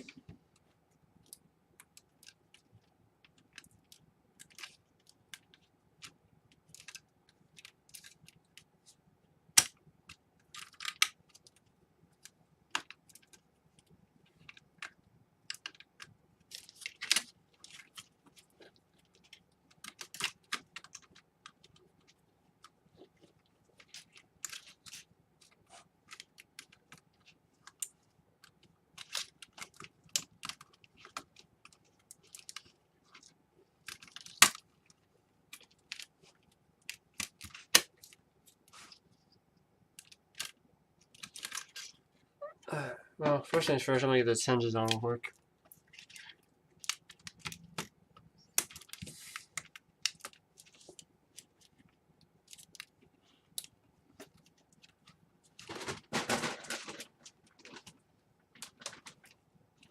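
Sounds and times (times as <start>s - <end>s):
small laptop parts clicking: 0.5s - 8.7s, 9.6s - 38.6s, 45.7s - 55.6s.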